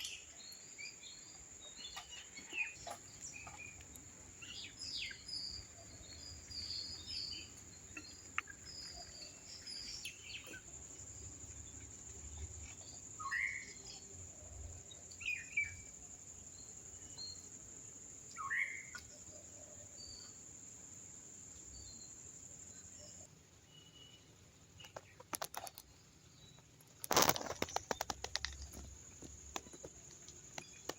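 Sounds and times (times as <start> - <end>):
birds chirping: 0.0 - 14.2
sharp clicks and crackles: 24.8 - 26.0, 26.8 - 30.9.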